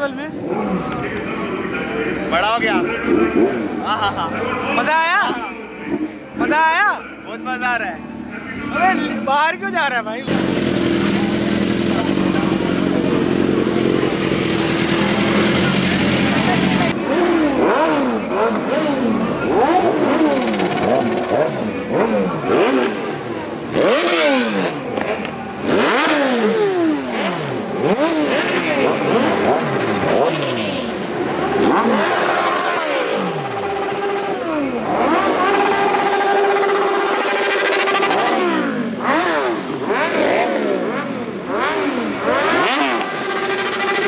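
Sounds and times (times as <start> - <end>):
motorcycle engines revving: 0.0 - 44.0.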